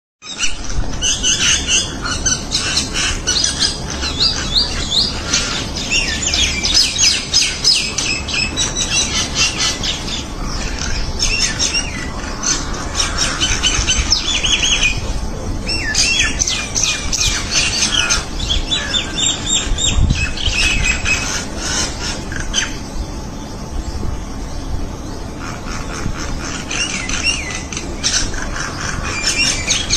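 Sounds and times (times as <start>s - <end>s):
birds chirping and squawking: 0.2s - 29.9s.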